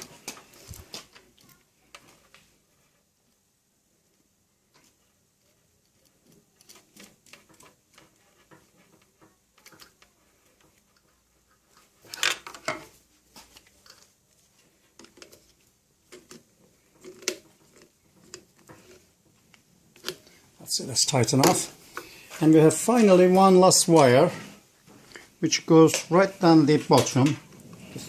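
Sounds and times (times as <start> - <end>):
metal clicks and scrapes: 14.9 - 20.4.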